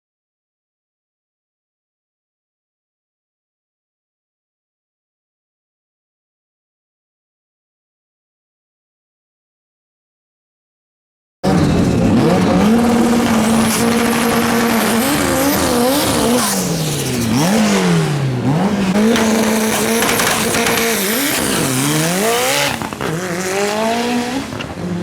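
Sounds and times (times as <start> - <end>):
race car engine revving: 11.4 - 25.0
tyres squealing: 12.4 - 23.2.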